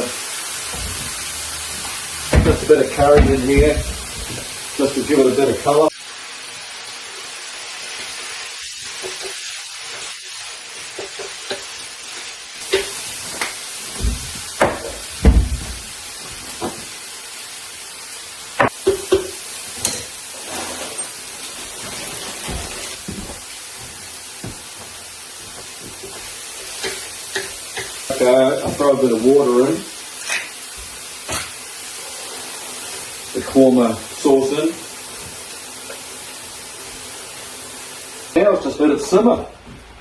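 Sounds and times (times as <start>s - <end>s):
food sizzling in a wok: 0.0s - 40.0s
utensils knocking in pan: 1.8s - 4.5s, 12.6s - 15.9s, 18.6s - 20.1s, 26.8s - 28.0s.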